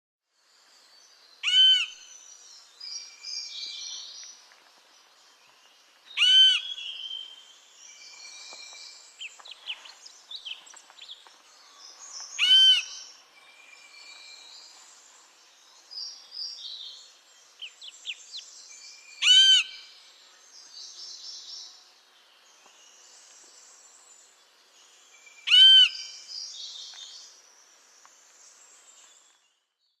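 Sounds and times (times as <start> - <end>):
woodpecker call notes: 1.4 - 2.1, 6.1 - 7.4, 11.6 - 13.2, 19.1 - 20.0, 25.2 - 27.3.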